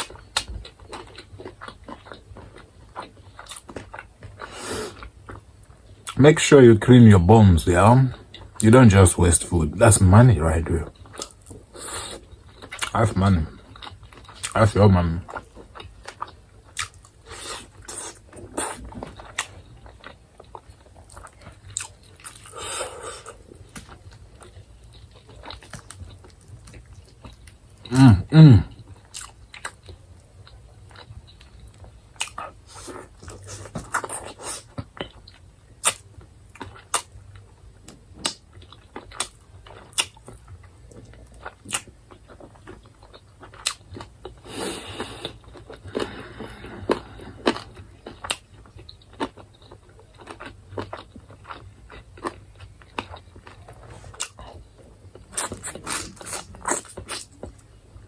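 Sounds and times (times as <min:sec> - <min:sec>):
person chewing: 0:00.0 - 0:06.2, 0:10.4 - 0:58.0.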